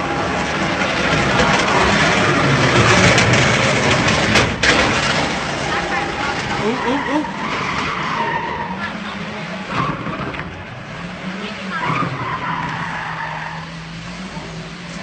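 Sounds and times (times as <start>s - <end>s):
car engine revving: 0.0s - 15.0s
tyres squealing: 5.4s - 10.6s, 11.2s - 14.2s.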